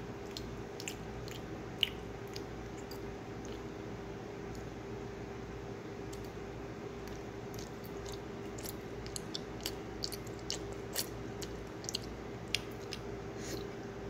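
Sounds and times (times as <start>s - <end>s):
chewing sticky candy: 0.2s - 3.8s, 7.0s - 13.8s.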